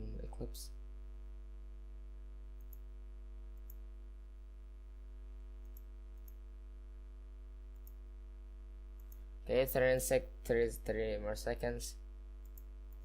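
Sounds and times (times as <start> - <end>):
electrical mains hum: 0.0 - 13.0
computer mouse clicks: 2.6 - 2.9, 3.5 - 3.8, 5.6 - 6.4, 7.7 - 8.0, 9.0 - 9.3, 12.4 - 13.0.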